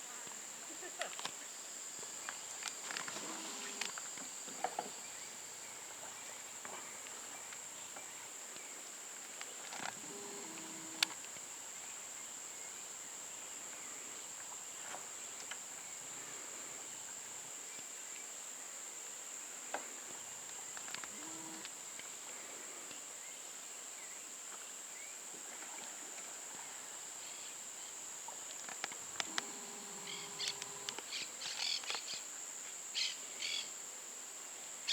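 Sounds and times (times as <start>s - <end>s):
high-pitched insect drone: 29.2s - 31.8s.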